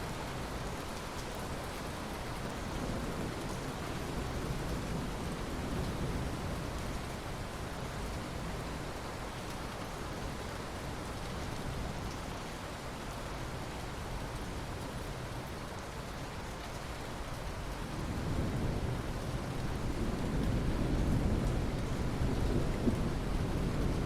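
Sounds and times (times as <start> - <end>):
steady rain falling: 0.0 - 24.0
low rumble of thunder: 2.6 - 9.0, 17.6 - 24.0.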